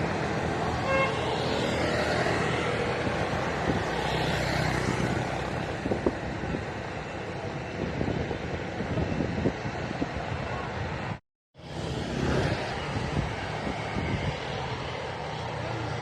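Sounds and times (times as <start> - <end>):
vehicle passing: 0.0 - 7.2
traffic noise: 0.0 - 16.0.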